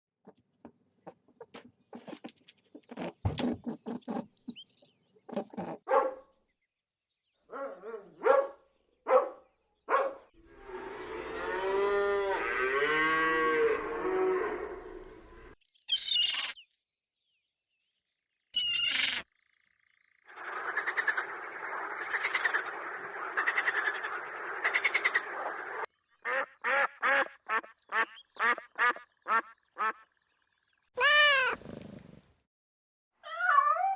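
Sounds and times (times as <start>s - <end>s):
animal calls: 23.4s - 25.6s.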